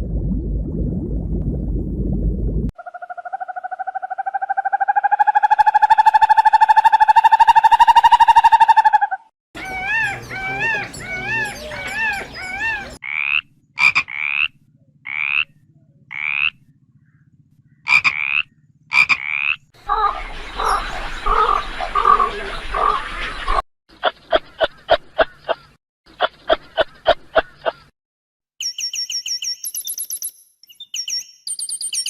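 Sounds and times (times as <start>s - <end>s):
repeating warbled call: 2.8s - 16.6s, 17.9s - 23.0s
steady pitched animal call: 2.8s - 23.6s
pulsing croaking chorus: 9.6s - 23.6s.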